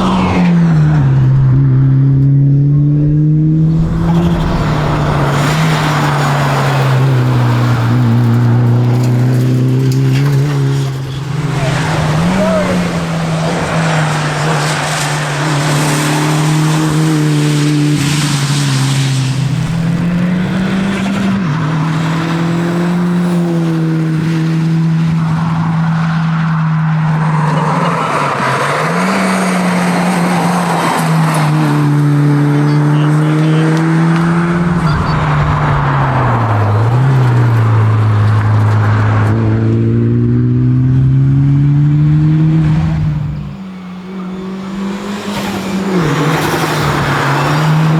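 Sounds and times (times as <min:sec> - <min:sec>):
car engine under load: 0:00.0 - 0:47.9.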